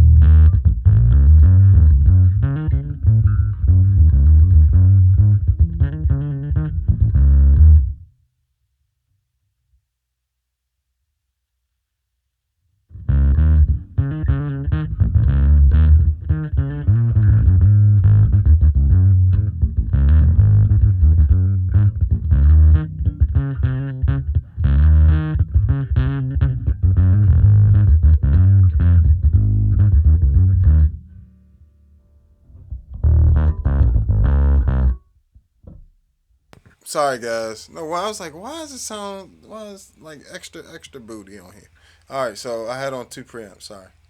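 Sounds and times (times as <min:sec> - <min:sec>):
overdriven electric bass playing: 0:00.0 - 0:08.1, 0:12.9 - 0:35.2.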